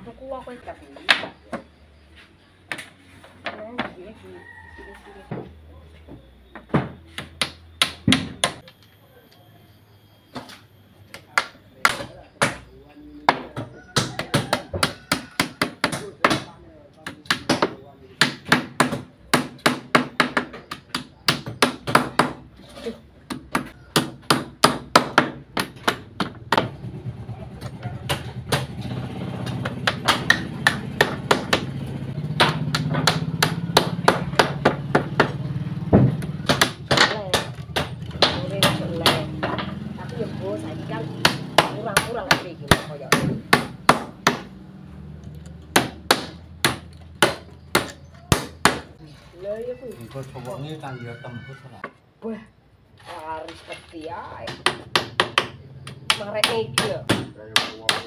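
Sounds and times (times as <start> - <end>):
hammer nailing boards: 29.4 - 31.7, 32.3 - 39.8, 45.7 - 48.9.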